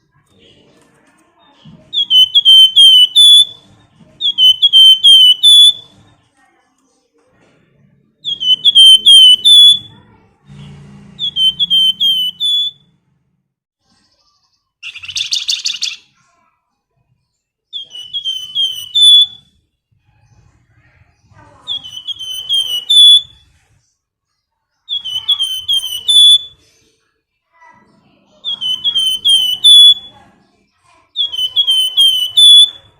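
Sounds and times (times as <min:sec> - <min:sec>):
buzzy bird trill: 0:01.9 - 0:03.6, 0:04.2 - 0:05.9, 0:08.2 - 0:10.0, 0:11.2 - 0:12.8, 0:14.2 - 0:16.1, 0:17.8 - 0:19.5, 0:21.2 - 0:23.5, 0:24.9 - 0:26.8, 0:28.4 - 0:30.2, 0:31.1 - 0:32.9
songbird whistling: 0:01.9 - 0:06.0, 0:08.2 - 0:10.0, 0:11.2 - 0:12.9, 0:14.8 - 0:16.1, 0:17.7 - 0:19.6, 0:21.7 - 0:23.6, 0:24.8 - 0:26.9, 0:28.4 - 0:30.2, 0:31.1 - 0:32.9.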